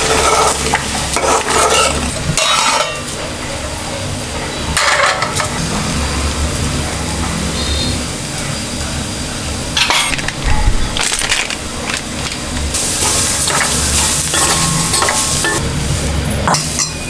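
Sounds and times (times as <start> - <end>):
utensil scraping a pan: 0.0 - 3.1
food sizzling in a pan: 0.0 - 3.2, 12.0 - 17.0.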